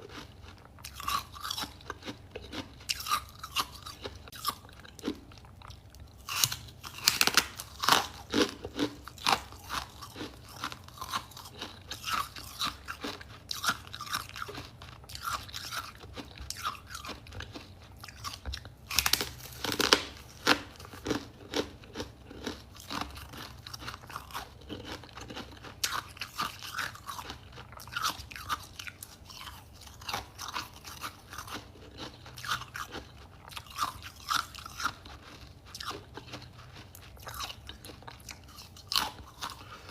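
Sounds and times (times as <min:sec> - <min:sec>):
person crunching ice: 0:06.2 - 0:28.6.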